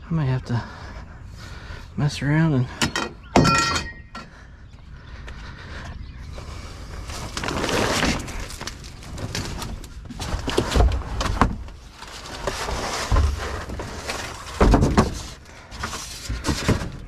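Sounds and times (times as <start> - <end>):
objects clattering and scraping: 2.8 - 4.4, 7.0 - 17.0.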